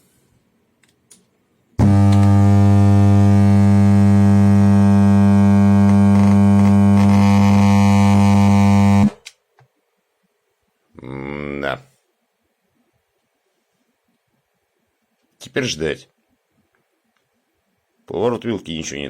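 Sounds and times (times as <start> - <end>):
amplifier hum through speakers: 0.0 - 9.3.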